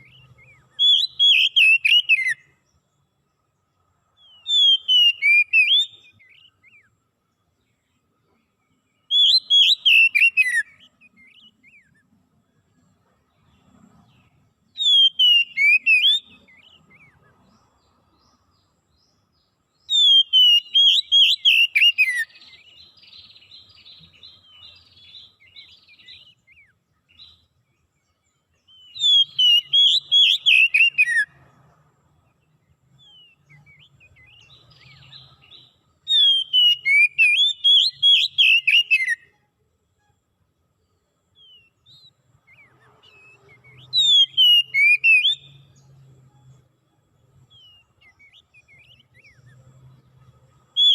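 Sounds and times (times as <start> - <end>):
soft bird twittering: 0.0 - 50.9
songbird whistled phrase: 36.1 - 39.4, 41.4 - 45.6.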